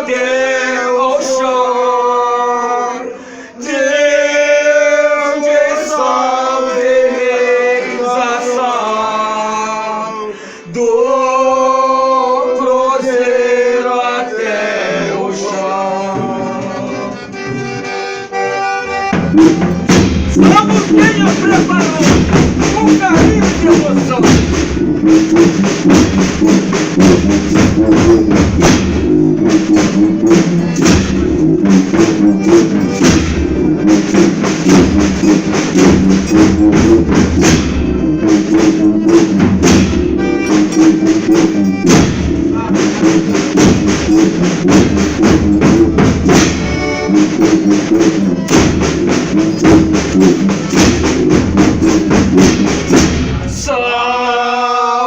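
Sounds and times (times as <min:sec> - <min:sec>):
sustained pitched instruments: 0:03.0 - 0:54.7
drum beating quick rhythm: 0:16.0 - 0:53.8.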